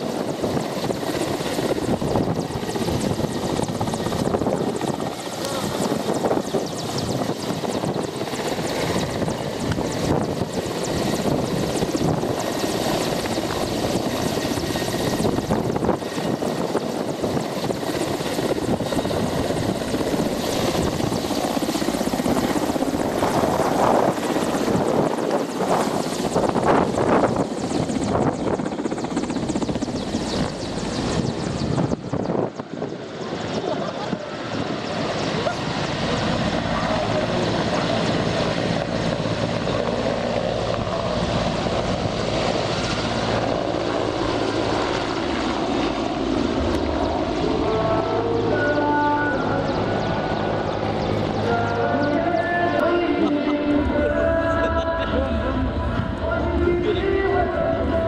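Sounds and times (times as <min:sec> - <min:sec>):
helicopter rotor and engine: 0:00.0 - 0:58.0
people's voices: 0:05.3 - 0:06.2, 0:33.2 - 0:38.5, 0:51.2 - 0:58.0.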